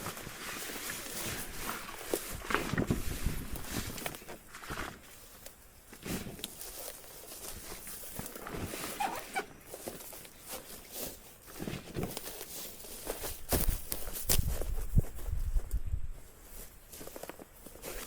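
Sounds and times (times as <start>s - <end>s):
rustling and knocking handling noises: 0.0s - 18.0s
footsteps: 6.2s - 18.0s.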